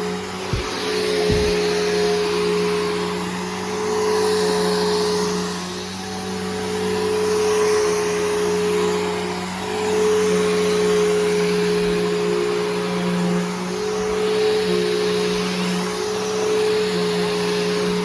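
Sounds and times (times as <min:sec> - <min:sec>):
upright vacuum cleaner running: 0:00.0 - 0:18.0.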